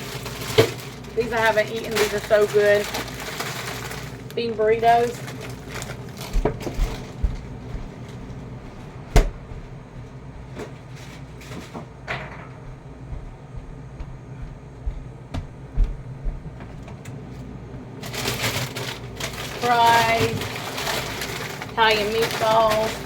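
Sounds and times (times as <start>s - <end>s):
frozen food packages being handled: 0.0s - 9.0s, 16.9s - 23.0s.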